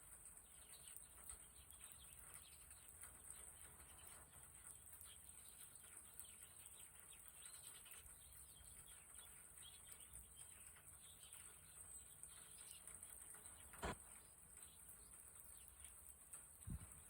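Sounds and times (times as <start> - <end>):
small birds chirping: 0.0 - 17.0
faint steady hiss: 7.1 - 17.0.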